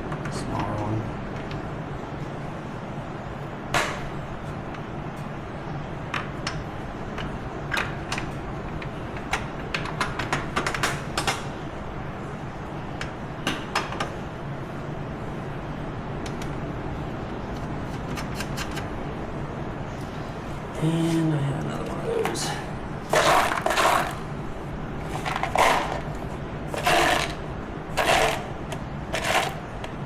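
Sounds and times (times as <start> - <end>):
steady low hum: 11.4 - 30.0.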